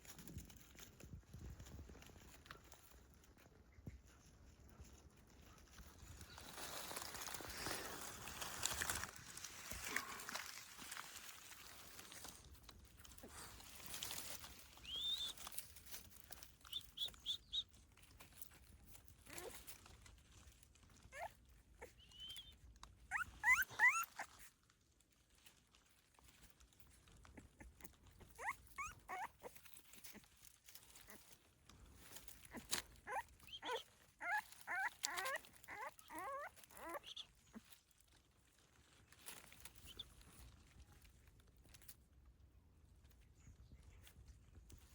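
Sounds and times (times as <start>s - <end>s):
rustling: 0.0s - 44.9s
puppies whining and squeaking: 13.1s - 24.6s, 26.3s - 40.6s.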